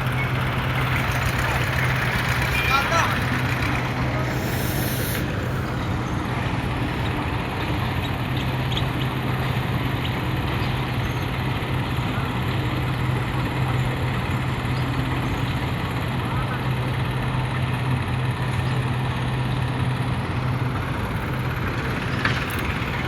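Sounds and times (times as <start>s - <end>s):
tractor engine idling: 0.0s - 23.0s
brief hiss: 4.3s - 5.6s.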